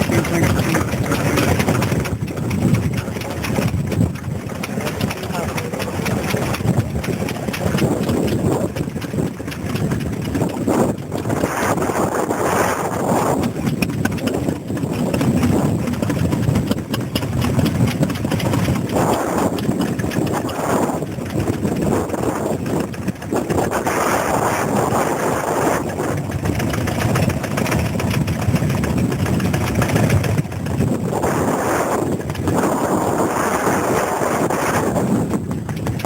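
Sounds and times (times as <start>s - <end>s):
stationary engine running: 0.0s - 32.9s.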